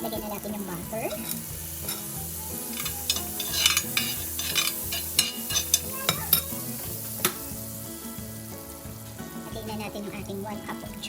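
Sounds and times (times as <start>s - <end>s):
butter sizzling on hot plate: 0.0s - 11.0s
utensil clicking and scraping metal: 2.7s - 6.6s.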